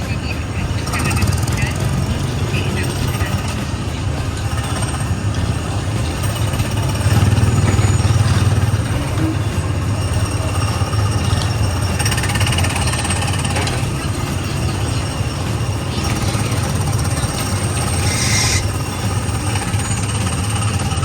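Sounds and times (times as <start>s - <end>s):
small gasoline engine puttering: 0.0s - 21.0s.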